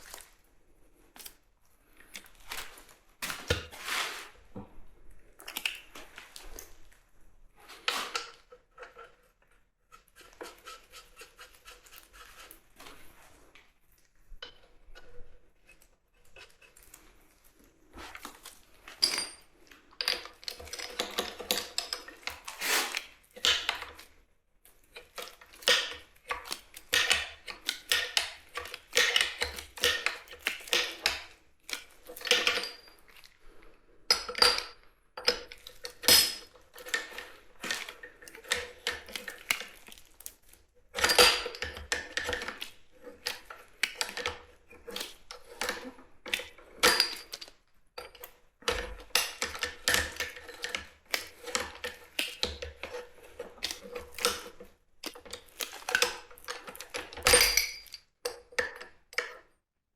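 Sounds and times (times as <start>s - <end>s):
metal tools clinking: 57.3s - 58.0s.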